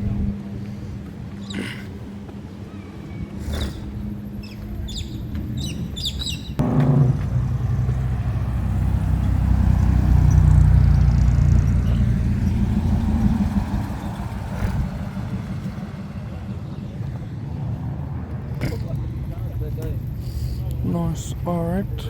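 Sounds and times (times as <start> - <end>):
car engine starting and running: 6.6 - 18.6.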